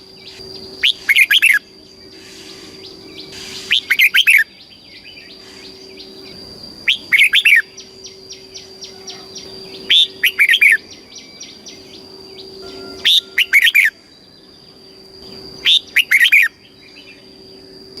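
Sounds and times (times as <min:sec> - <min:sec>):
bird singing warbling phrases: 0:00.2 - 0:17.4
faint high-pitched tone: 0:06.9 - 0:14.7.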